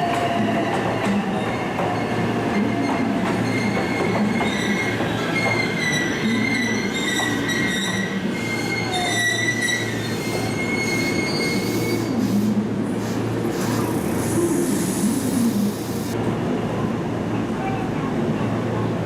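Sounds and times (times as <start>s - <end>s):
train wheels squealing: 1.3s - 15.4s.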